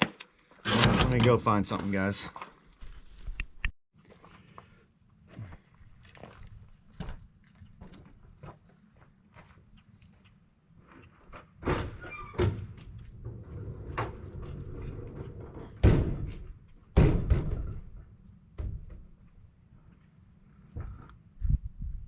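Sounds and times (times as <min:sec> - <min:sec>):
heavy thunks and knocks: 0:15.8 - 0:18.0.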